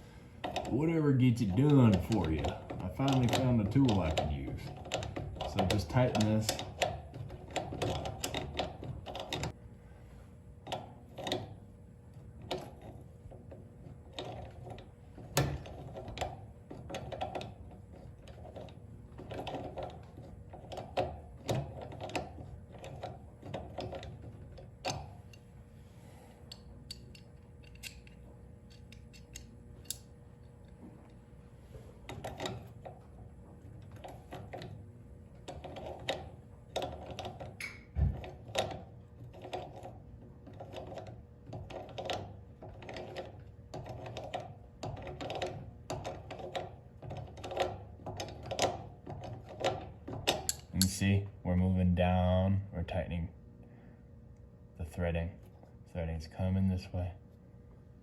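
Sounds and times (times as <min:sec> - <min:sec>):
hand tool clicking on metal nut: 0:26.5 - 0:30.1, 0:50.3 - 0:51.0.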